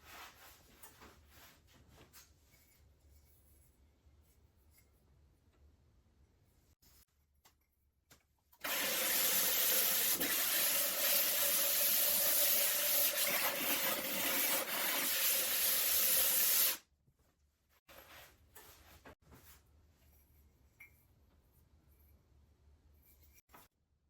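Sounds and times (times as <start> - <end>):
ceramic grinding on wet disc: 8.6 - 16.8.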